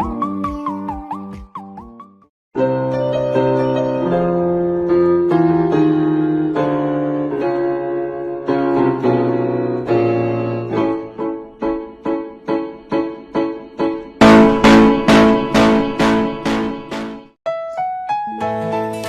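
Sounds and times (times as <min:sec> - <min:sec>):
piano chords: 0:00.0 - 0:19.0.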